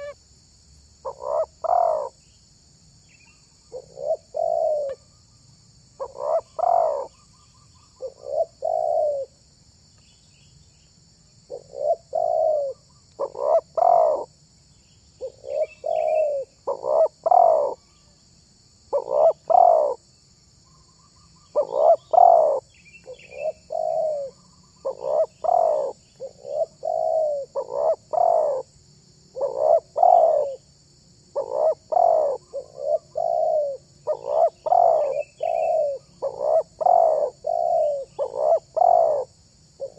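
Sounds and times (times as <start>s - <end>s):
dove cooing: 1.0s - 2.2s, 3.7s - 5.0s, 6.0s - 7.2s, 8.0s - 9.4s, 11.5s - 14.3s, 15.2s - 17.8s, 18.9s - 20.0s, 21.5s - 28.7s, 29.3s - 30.6s, 31.4s - 39.9s
small birds chirping: 1.0s - 18.3s, 20.6s - 28.7s, 29.3s - 30.6s, 31.4s - 39.9s.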